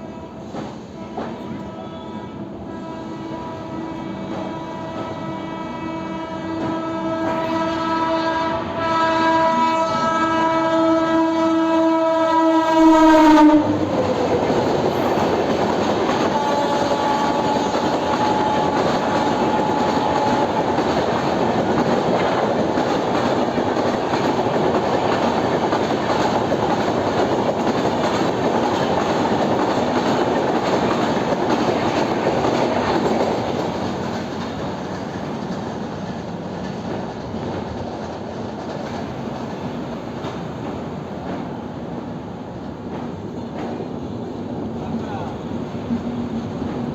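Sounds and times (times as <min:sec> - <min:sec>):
train horn: 0:00.0 - 0:21.4
train passing with wheel clatter: 0:00.0 - 0:46.9.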